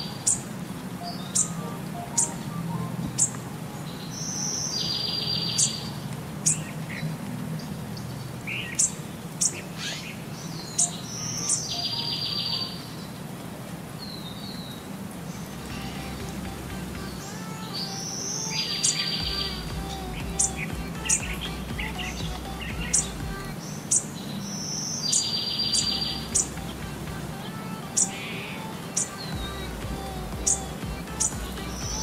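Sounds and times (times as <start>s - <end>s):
buzzy bird trills: 0.0s - 6.7s
birds chirping: 0.0s - 32.0s
low steady hum: 15.3s - 18.0s, 19.2s - 23.8s, 25.7s - 27.7s, 29.3s - 32.0s.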